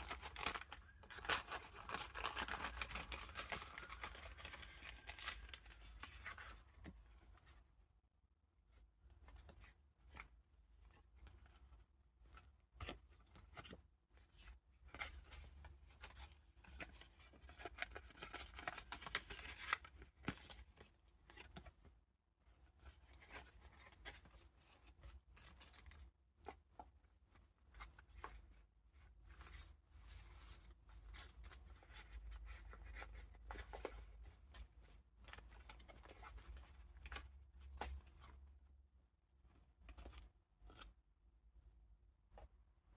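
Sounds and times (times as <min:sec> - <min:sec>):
paper pages rustling: 0:00.0 - 0:07.3, 0:11.3 - 0:21.8, 0:22.7 - 0:38.4.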